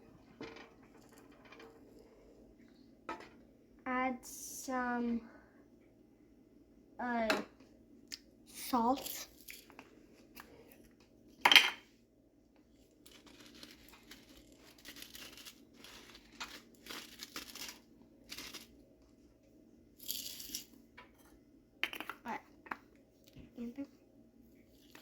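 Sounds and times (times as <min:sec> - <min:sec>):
scratchy rustling noises: 0:13.1 - 0:18.7.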